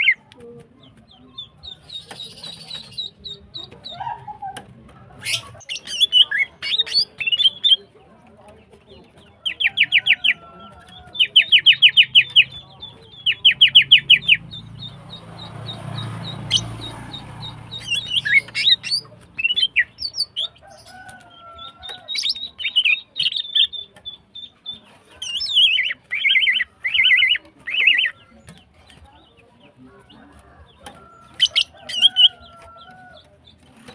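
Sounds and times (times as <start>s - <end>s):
bird chirps and trills: 0.8s - 4.5s, 5.2s - 8.0s, 9.0s - 33.9s
bird calling with rapid sharp notes: 5.2s - 7.9s, 9.5s - 21.1s, 21.9s - 29.0s.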